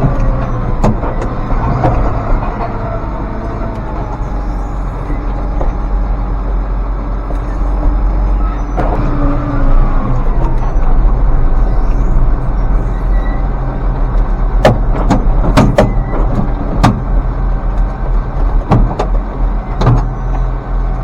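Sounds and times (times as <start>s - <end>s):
sharp knocks and rattles: 0.0s - 6.6s, 13.4s - 20.7s
tractor engine running: 0.0s - 21.0s.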